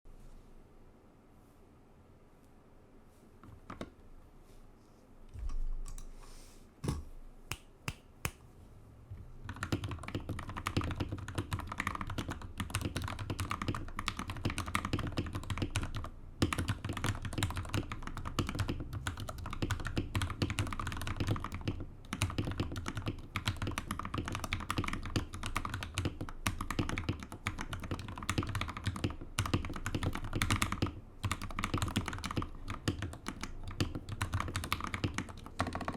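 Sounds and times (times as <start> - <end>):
mechanical keyboard typing: 9.4 - 35.9.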